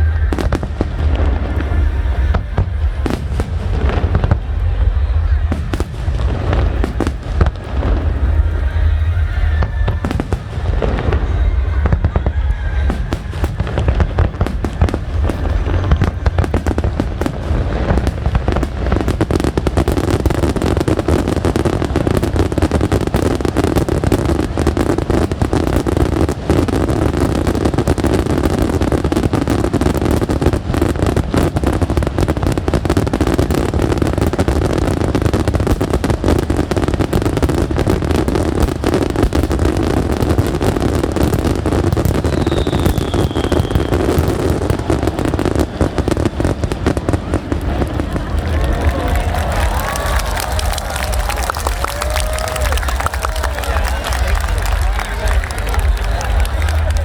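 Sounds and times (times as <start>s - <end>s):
low rumble: 0.0s - 21.0s
fireworks cracks and bangs: 0.0s - 57.0s
falling whistle: 42.2s - 44.2s.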